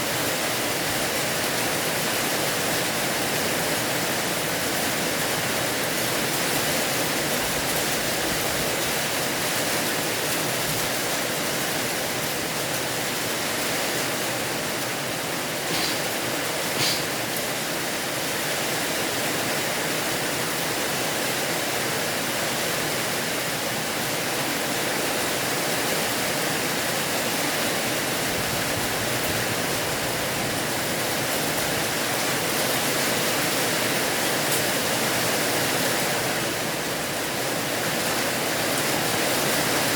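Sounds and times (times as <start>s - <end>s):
heavy rain hissing: 0.0s - 19.7s.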